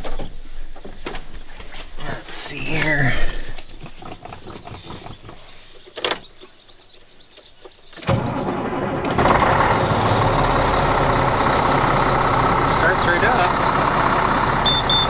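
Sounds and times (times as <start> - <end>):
diesel engine running: 8.0 - 15.0
starter motor cranking: 8.0 - 15.0.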